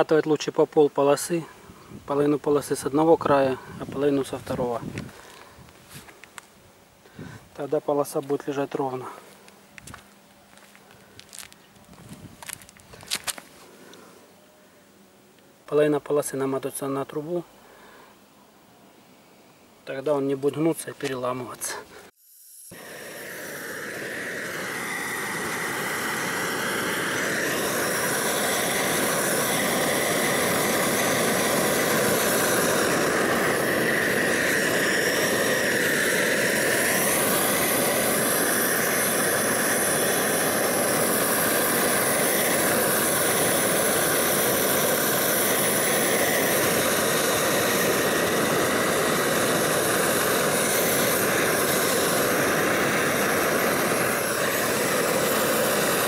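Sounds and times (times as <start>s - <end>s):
gas torch flame rushing: 21.3s - 56.0s.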